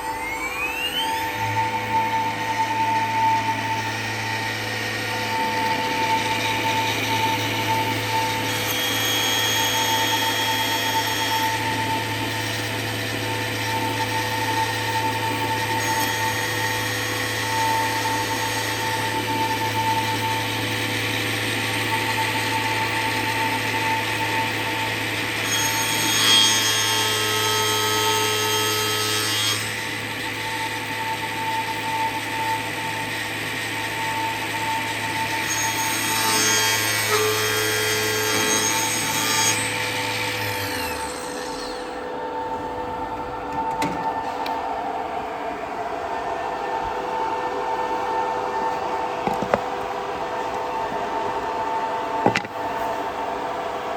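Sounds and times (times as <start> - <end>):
saw blade scraping: 0.0 - 12.5, 35.4 - 42.0
spindle whine over low hum: 0.0 - 25.5, 37.2 - 53.9.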